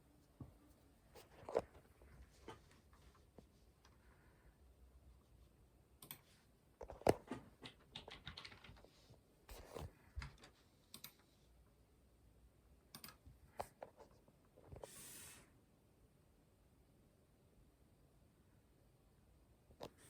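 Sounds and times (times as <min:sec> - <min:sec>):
computer keyboard typing: 0:06.0 - 0:09.0, 0:10.2 - 0:11.2, 0:12.9 - 0:13.2.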